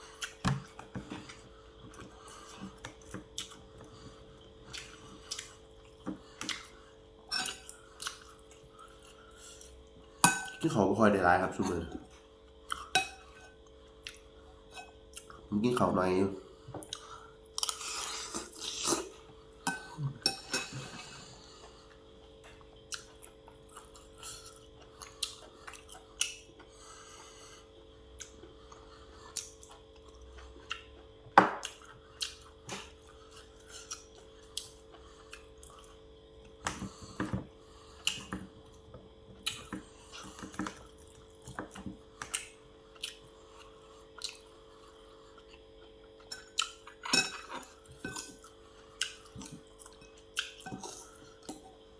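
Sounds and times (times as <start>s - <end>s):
person chewing and mouth smacks: 0.0s - 9.8s, 12.6s - 12.9s, 13.6s - 14.4s, 16.7s - 26.8s, 27.6s - 37.3s, 38.0s - 51.8s
faint steady hum: 0.0s - 51.9s.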